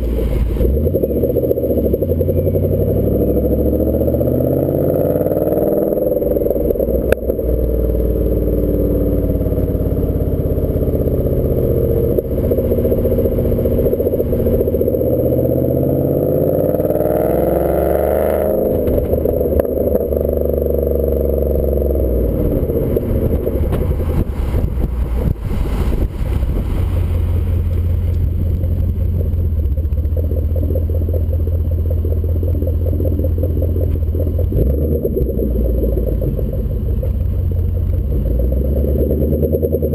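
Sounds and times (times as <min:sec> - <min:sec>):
car engine revving while driving: 0:00.0 - 0:39.9.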